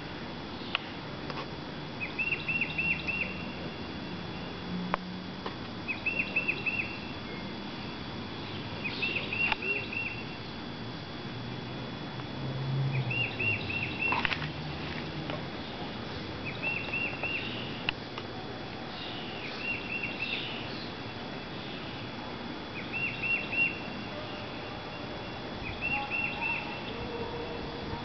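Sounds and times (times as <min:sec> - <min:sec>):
songbird singing: 0:00.5 - 0:01.0, 0:02.0 - 0:04.6, 0:05.8 - 0:10.6, 0:12.8 - 0:18.0, 0:18.8 - 0:28.0.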